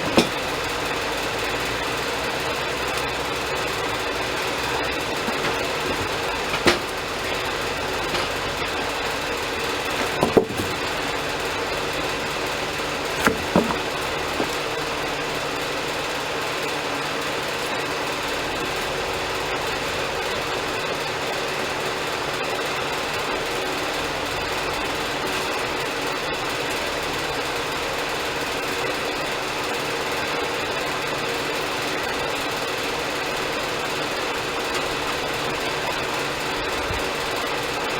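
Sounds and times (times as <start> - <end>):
short sharp knocks: 0.0 - 0.5, 5.2 - 7.0, 9.9 - 11.0, 13.2 - 14.8
sawmill engine running: 0.0 - 21.6.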